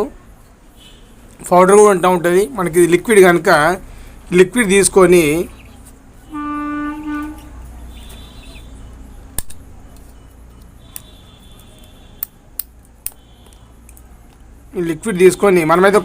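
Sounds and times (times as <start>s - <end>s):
steady horn-like note: 6.3s - 7.6s
faint high chirps: 7.7s - 12.1s
plastic bottle cap clicks: 9.4s - 11.1s.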